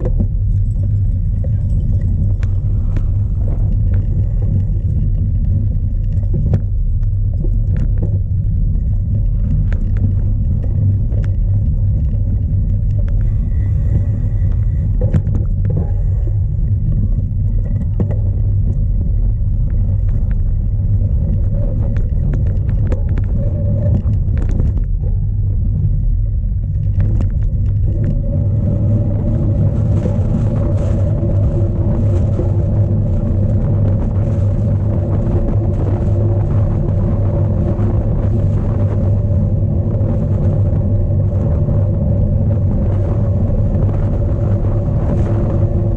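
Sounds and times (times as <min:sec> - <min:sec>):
bike clicks and rattles: 0:00.0 - 0:31.4
wind buffeting microphone: 0:00.0 - 0:45.9.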